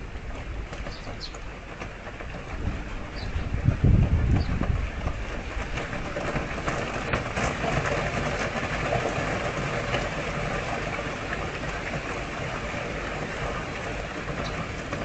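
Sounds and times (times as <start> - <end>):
rain falling on gravel and plants: 0.0 - 15.0.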